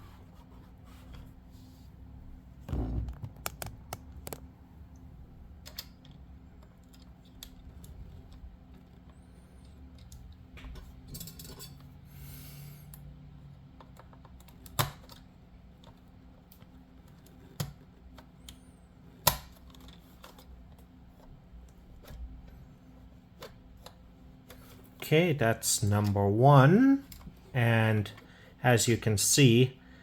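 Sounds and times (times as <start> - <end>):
small plastic clicks and taps: 3.1 - 4.4.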